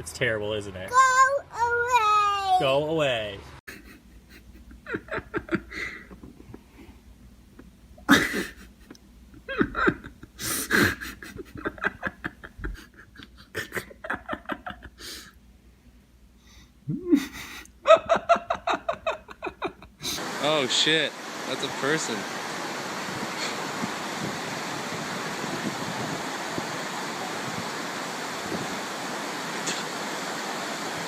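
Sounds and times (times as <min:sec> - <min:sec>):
people laughing: 0:03.7 - 0:06.5, 0:08.1 - 0:15.1, 0:17.2 - 0:20.2
people breathing: 0:05.7 - 0:07.1.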